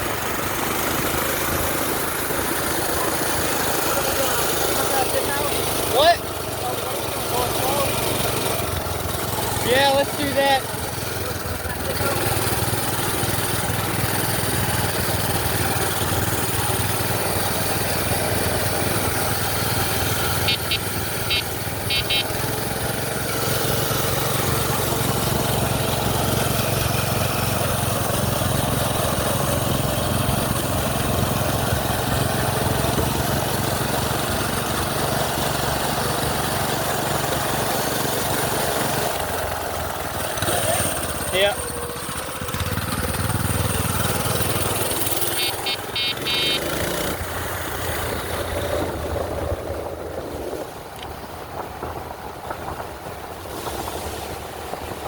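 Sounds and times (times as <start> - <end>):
minibike engine running: 0.0 - 55.0
short high chirps: 20.4 - 22.4, 45.2 - 46.8.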